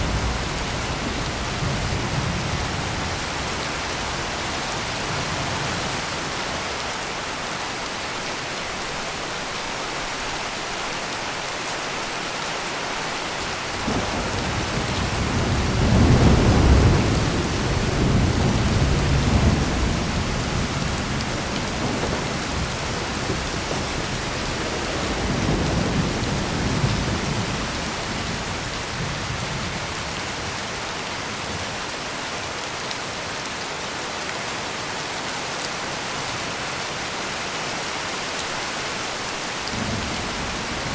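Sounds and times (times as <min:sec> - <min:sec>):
heavy rain: 0:00.0 - 0:40.9
rolling thunder: 0:13.8 - 0:30.1, 0:39.7 - 0:40.9.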